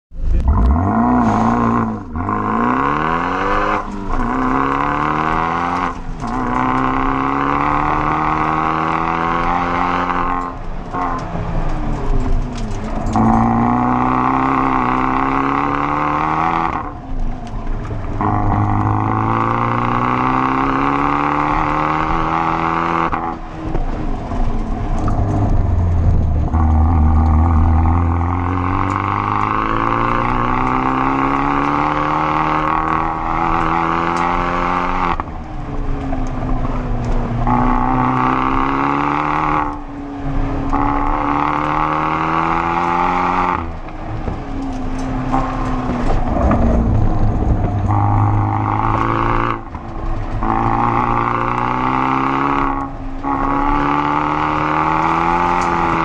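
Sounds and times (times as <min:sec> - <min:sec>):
car engine revving hard: 0:00.2 - 0:56.0
steady rushing noise: 0:43.6 - 0:50.5.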